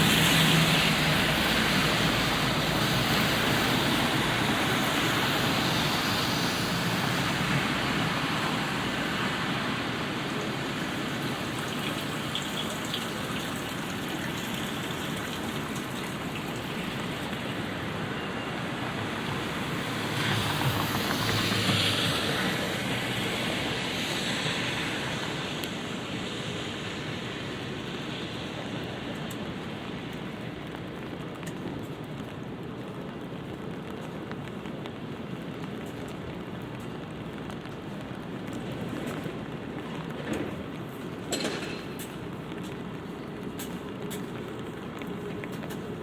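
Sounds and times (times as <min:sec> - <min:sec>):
light rain on pavement: 0:00.0 - 0:46.0
vehicle passing on wet road: 0:00.0 - 0:46.0.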